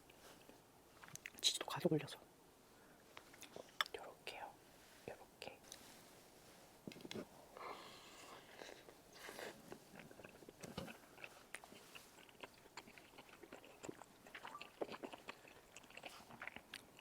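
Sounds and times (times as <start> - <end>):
chewing clicks and smacks: 9.9 - 17.0.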